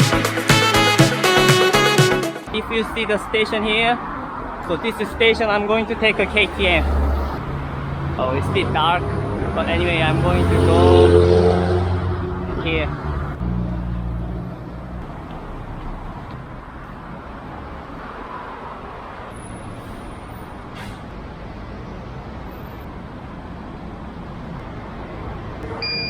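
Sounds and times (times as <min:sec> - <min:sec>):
steady traffic din: 0:02.4 - 0:26.0
vehicle engine rumbling: 0:02.5 - 0:18.2.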